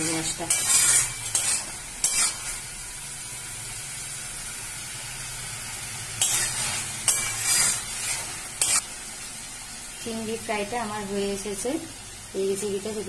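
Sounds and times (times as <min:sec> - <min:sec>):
metal spatula scraping: 0:00.0 - 0:02.8, 0:06.2 - 0:08.9
prawns sizzling in a wok: 0:00.0 - 0:13.0.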